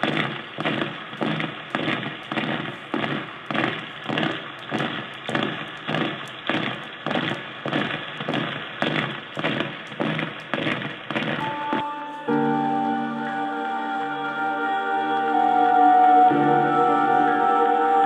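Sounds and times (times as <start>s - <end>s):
held keyboard note: 11.4s - 18.0s.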